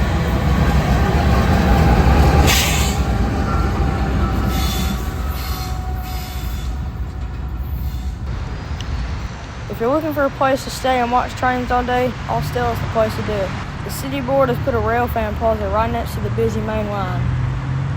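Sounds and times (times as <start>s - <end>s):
freight train rumbling: 0.0s - 17.9s
train wheel squeal: 1.5s - 9.2s.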